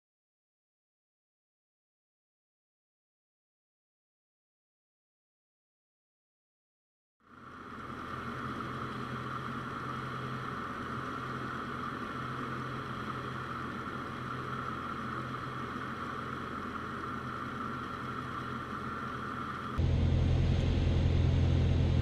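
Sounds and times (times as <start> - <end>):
airplane engine and propeller droning: 7.2 - 22.0.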